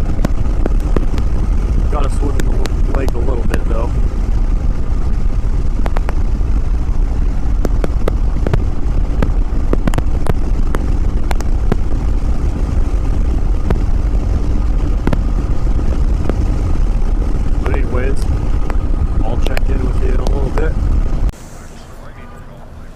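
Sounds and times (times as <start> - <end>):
sharp ticks: 0.0 - 6.3
motorcycle engine cruising: 0.0 - 21.3.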